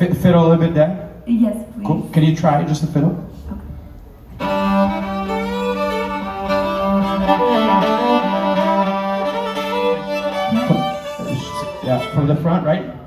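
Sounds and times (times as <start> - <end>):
solo fiddle playing: 4.4 - 12.8.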